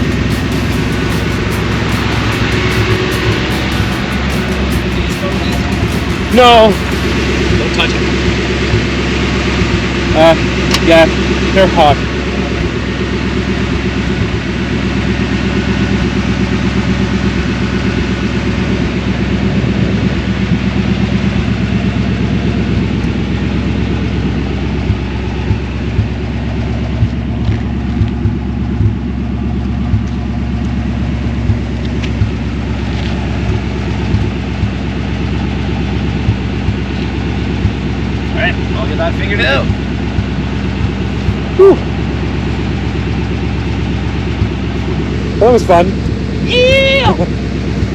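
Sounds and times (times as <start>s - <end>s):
car engine running: 0.0s - 47.9s.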